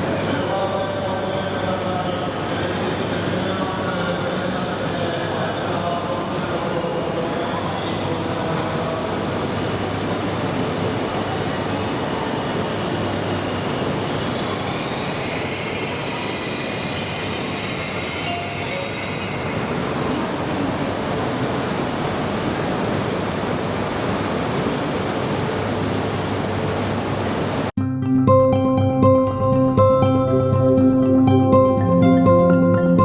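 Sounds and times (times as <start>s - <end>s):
train running on rails: 0.0s - 27.7s
high thin wheel squeal: 13.6s - 19.6s.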